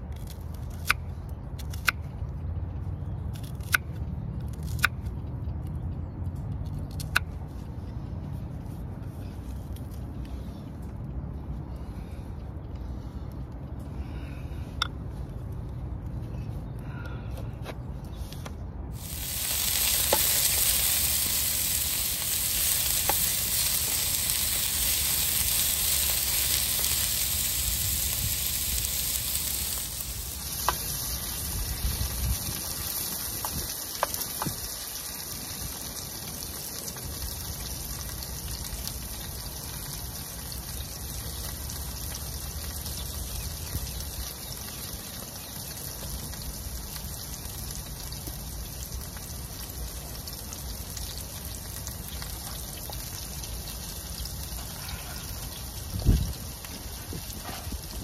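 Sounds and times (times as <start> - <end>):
food sizzling in a frying pan: 19.0 - 38.4.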